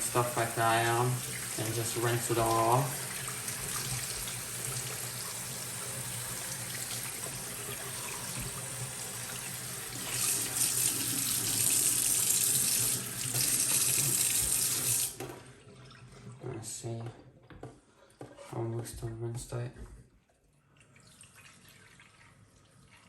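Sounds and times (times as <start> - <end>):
tap water splashing on plastic: 8.2 - 8.7.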